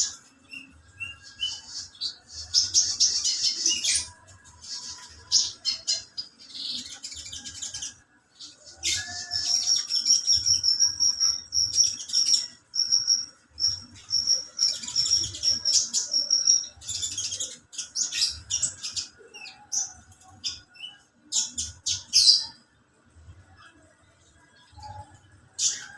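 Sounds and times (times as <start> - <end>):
bird chirping: 0.0 - 25.9
rapid repeated bird notes: 9.6 - 23.1.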